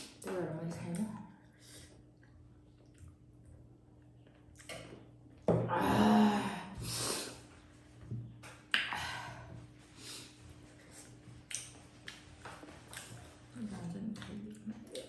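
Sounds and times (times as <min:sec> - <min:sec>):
person eating sounds: 0:01.8 - 0:05.1, 0:10.7 - 0:15.0.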